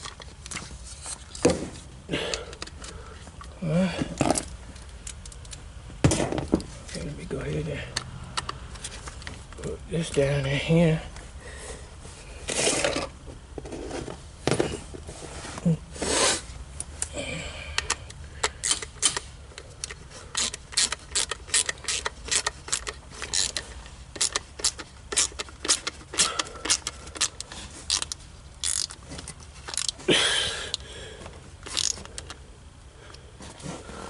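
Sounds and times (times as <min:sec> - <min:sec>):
tool scraping: 0:12.4 - 0:16.5
hand tools clicking: 0:17.7 - 0:30.0.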